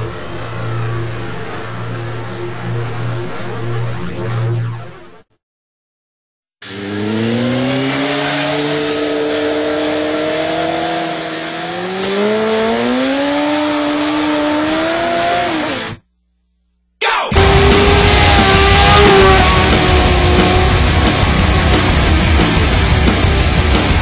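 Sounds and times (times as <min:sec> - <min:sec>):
motorcycle engine at high revs: 0:06.6 - 0:16.0, 0:17.4 - 0:24.0
loud music: 0:17.0 - 0:24.0.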